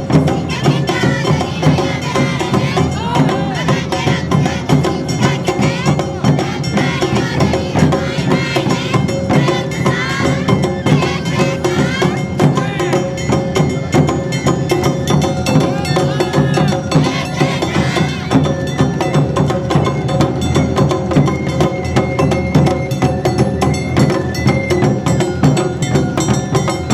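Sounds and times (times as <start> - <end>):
drums and clacking percussion: 0.0 - 26.9.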